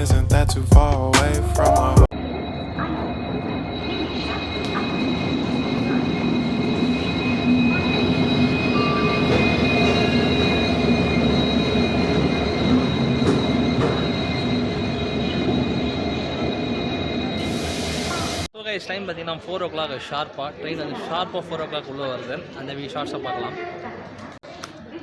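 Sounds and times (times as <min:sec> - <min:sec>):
train rumble: 0:02.2 - 0:18.5
train wheels squealing on rails: 0:02.2 - 0:18.5.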